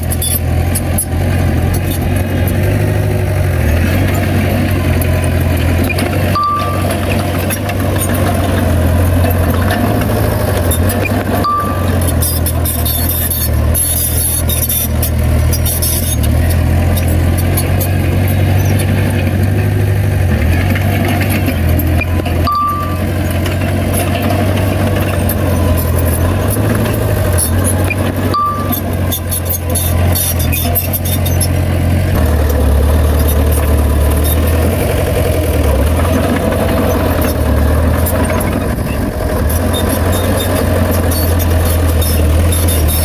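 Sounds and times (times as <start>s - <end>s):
heavy diesel engine humming: 0.0s - 43.0s
short high beeps: 5.8s - 7.7s, 11.0s - 14.9s, 22.0s - 23.3s, 26.9s - 31.5s.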